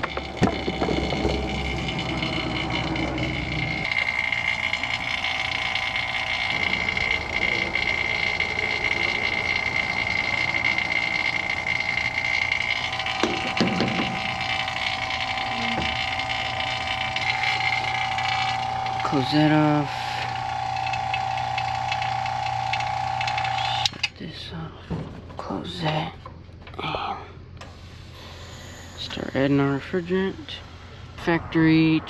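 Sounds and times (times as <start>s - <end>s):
high-pitched tone: 0.0s - 20.3s
vacuum pump running: 0.0s - 24.1s, 27.6s - 31.2s.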